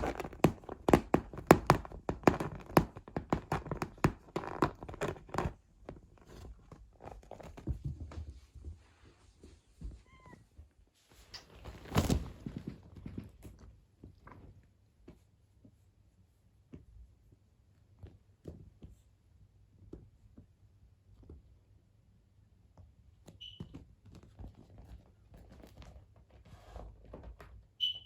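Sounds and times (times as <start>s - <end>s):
cat meowing faintly: 10.0s - 10.5s.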